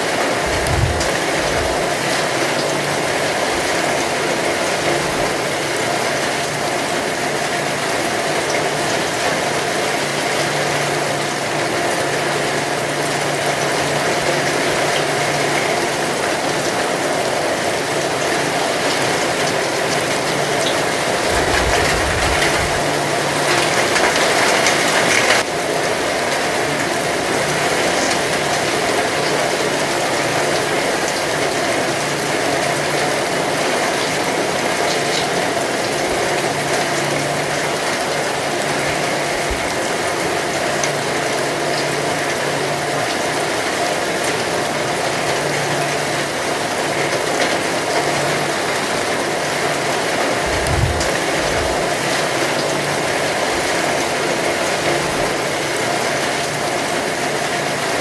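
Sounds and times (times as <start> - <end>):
heavy rain falling: 0.0 - 58.0
low rumble: 0.4 - 1.8, 21.2 - 23.0, 50.5 - 51.8.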